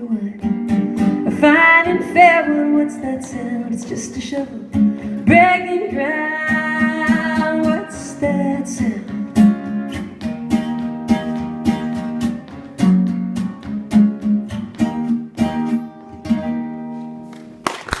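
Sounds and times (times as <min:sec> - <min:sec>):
acoustic guitar playing: 0:00.0 - 0:17.7.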